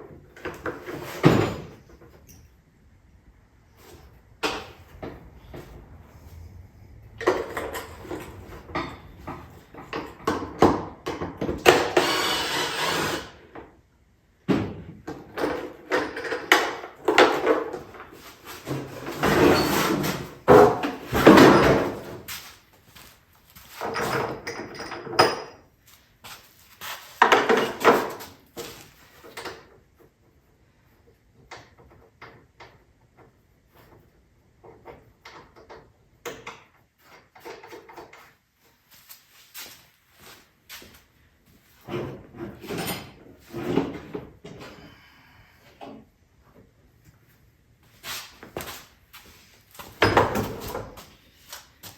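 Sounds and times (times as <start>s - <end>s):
knocks and clatter of parts: 0.0s - 2.7s, 3.8s - 5.8s, 7.0s - 38.8s, 41.6s - 44.9s, 48.4s - 51.9s.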